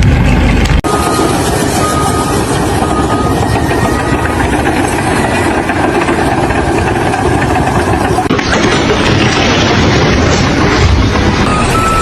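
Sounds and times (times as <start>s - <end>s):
heavy machine engine running: 0.0s - 12.0s.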